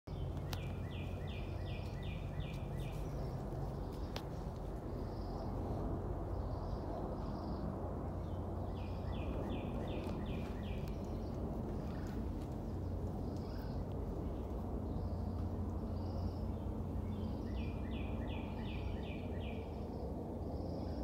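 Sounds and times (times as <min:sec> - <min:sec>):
low rumble: 0:00.1 - 0:21.0
songbird singing: 0:00.1 - 0:21.0.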